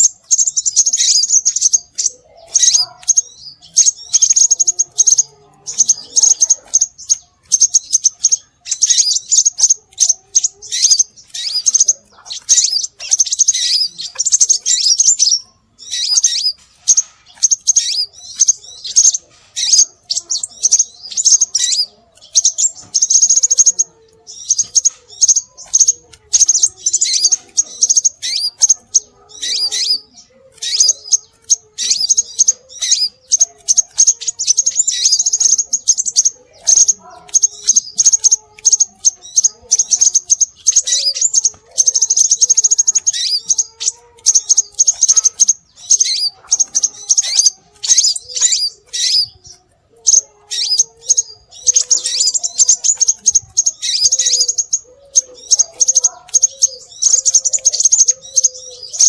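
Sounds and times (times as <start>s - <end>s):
bird high thin chirps: 0.0s - 59.0s.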